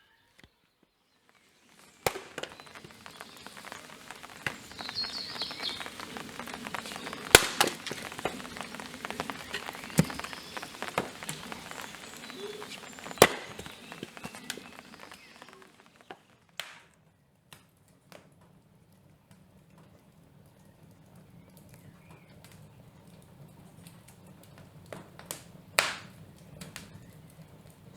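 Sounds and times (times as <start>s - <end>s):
rain hitting a hard surface: 1.2s - 27.9s.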